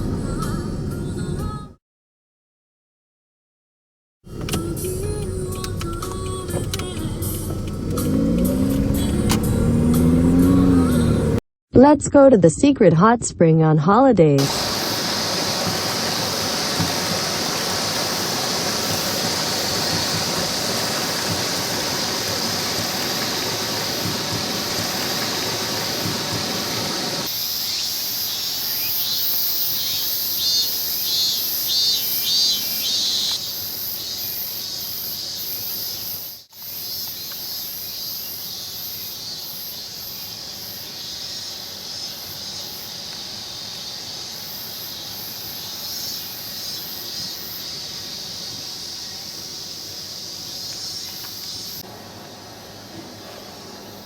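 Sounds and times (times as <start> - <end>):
mountain stream rushing: 14.4 - 27.3.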